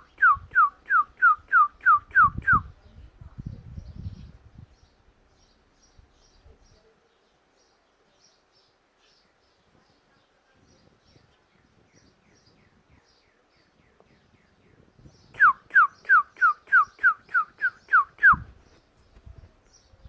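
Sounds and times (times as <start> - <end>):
bird whistling song: 0.0 - 2.7, 15.0 - 18.8.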